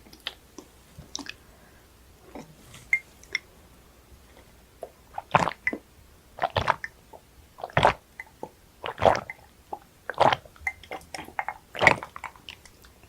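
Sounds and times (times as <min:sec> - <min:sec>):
wet squishy eating sounds: 0:04.8 - 0:05.8, 0:06.4 - 0:13.0.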